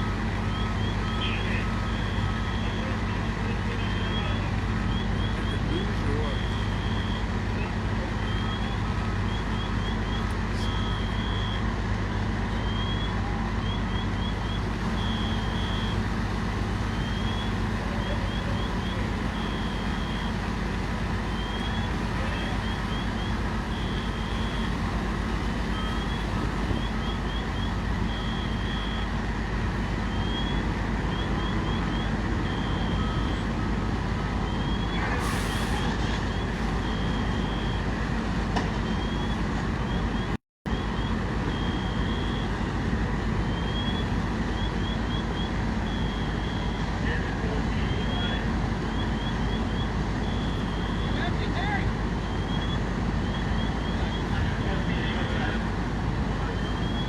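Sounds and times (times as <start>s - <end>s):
heavy truck engines running: 0.0s - 57.0s
high electronic alarm chirping: 13.7s - 29.2s
brief hiss: 35.2s - 36.2s.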